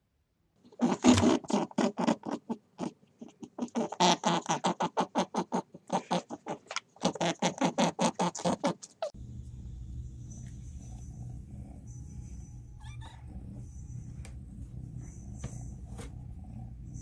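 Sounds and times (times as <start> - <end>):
animal making rhythmic pulses: 0.8 - 9.2.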